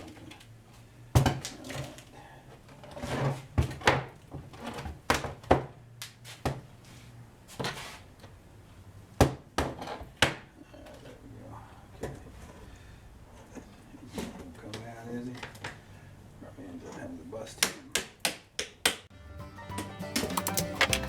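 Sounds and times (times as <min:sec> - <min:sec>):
knocks and clunks of objects: 0:01.2 - 0:02.0, 0:02.7 - 0:05.8, 0:09.2 - 0:11.1, 0:20.1 - 0:21.0.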